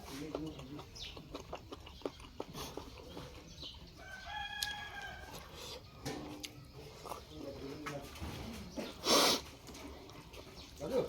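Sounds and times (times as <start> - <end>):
rooster crowing: 4.0 - 5.5.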